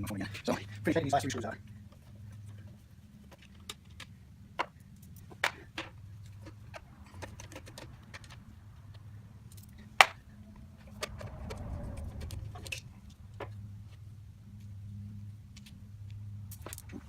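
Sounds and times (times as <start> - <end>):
steady low hum: 8.4 - 17.0.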